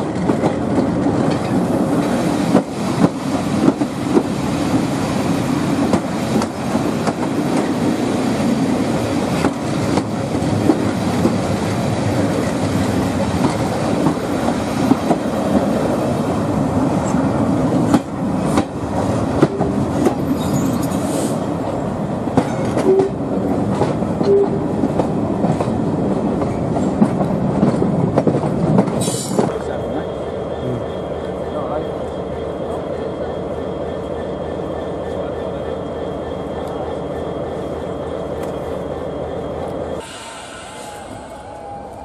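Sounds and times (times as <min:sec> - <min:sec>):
train wheels rumbling: 0:00.0 - 0:42.0
rushing air: 0:40.0 - 0:42.0.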